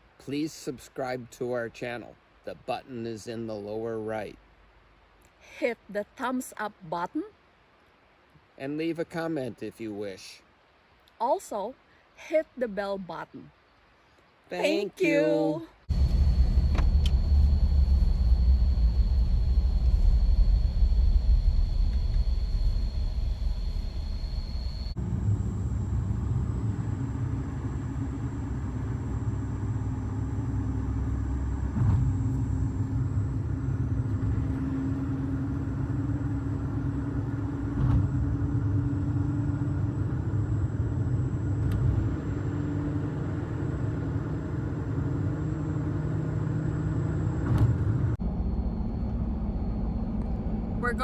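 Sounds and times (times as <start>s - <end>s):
car engine and road noise: 15.9s - 50.8s.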